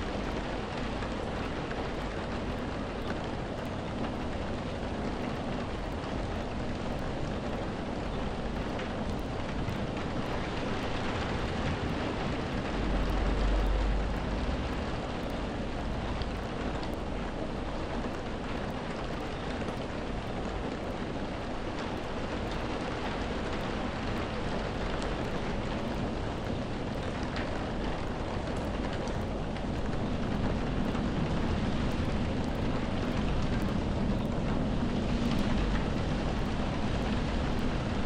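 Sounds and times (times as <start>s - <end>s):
steady rain hissing: 0.0s - 38.0s
low rumble: 11.5s - 16.8s.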